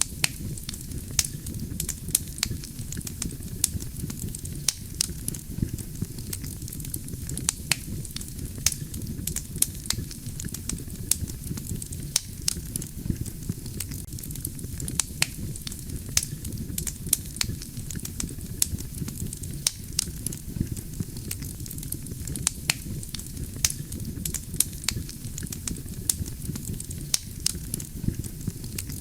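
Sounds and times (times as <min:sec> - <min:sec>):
logs crackling and popping: 0:00.0 - 0:29.0
low rumble of flames: 0:00.0 - 0:29.0.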